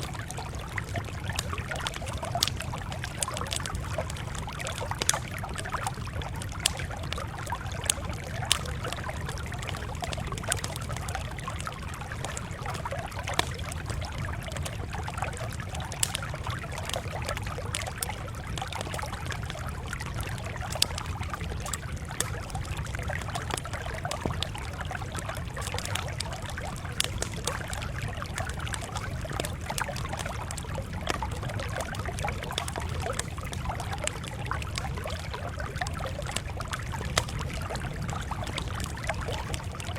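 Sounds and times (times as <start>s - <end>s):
campfire crackling and popping: 0.0s - 39.9s
low steady rumble: 0.0s - 39.9s.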